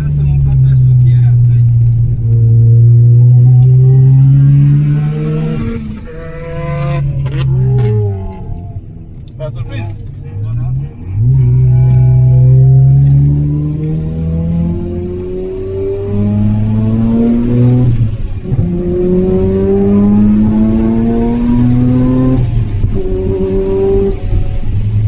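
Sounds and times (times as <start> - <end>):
rotary engine accelerating: 0.0 - 25.0
high whine: 11.2 - 25.0.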